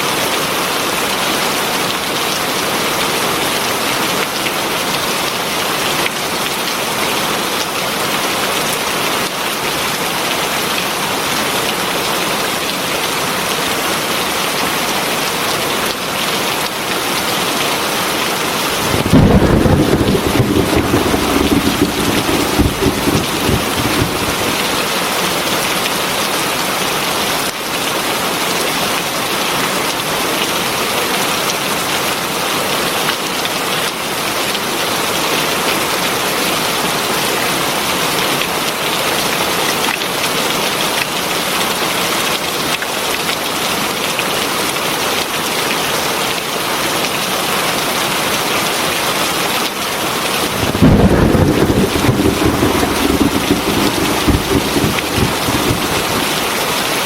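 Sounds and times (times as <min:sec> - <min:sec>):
heavy rain hissing: 0:18.6 - 0:25.4, 0:50.4 - 0:57.0
thunder rumbling: 0:18.6 - 0:25.5, 0:50.4 - 0:57.0.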